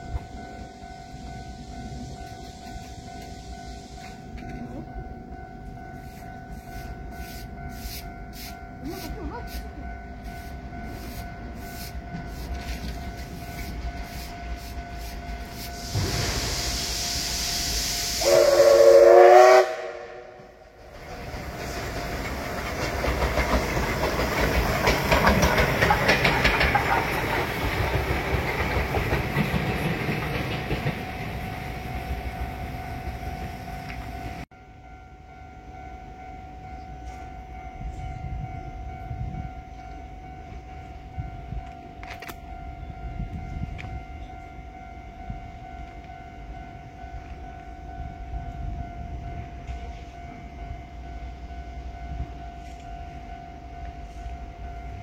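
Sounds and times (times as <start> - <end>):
train horn blast: 18.1 - 20.6
train wheels clattering over rail joints: 20.7 - 31.4.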